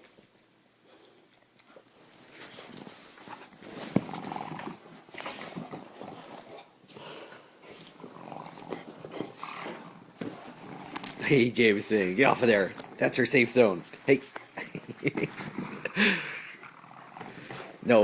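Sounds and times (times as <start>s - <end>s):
dogs scuffling and playing: 1.0s - 15.7s, 16.9s - 18.0s.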